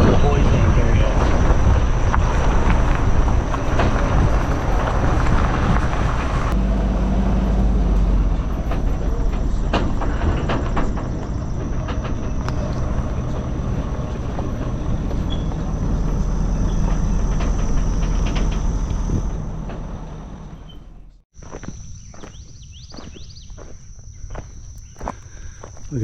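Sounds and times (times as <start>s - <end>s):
trailer rattles and knocks: 0.0s - 26.0s
vehicle engine and road rumble: 0.0s - 26.0s.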